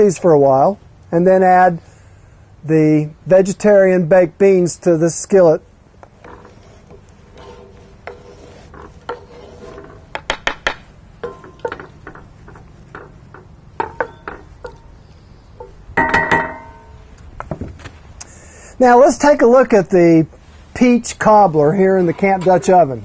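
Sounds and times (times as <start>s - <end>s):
metal cookware clinking: 11.2s - 14.9s, 15.6s - 17.0s
ringing metallic clang: 11.2s - 15.0s, 15.6s - 17.1s.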